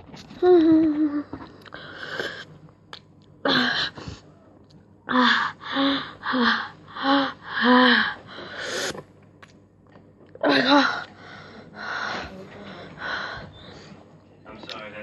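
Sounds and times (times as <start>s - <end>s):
moaning: 3.4s - 8.8s, 10.4s - 13.9s.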